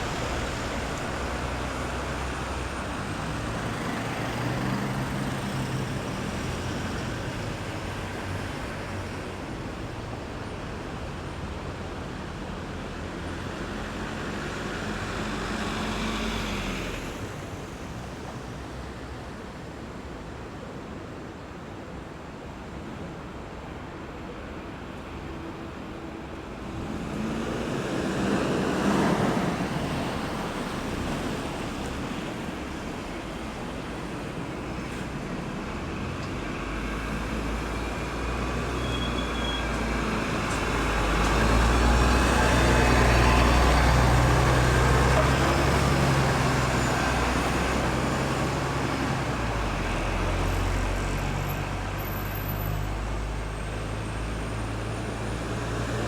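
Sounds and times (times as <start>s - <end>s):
road traffic passing: 0.0s - 22.0s, 23.2s - 56.0s.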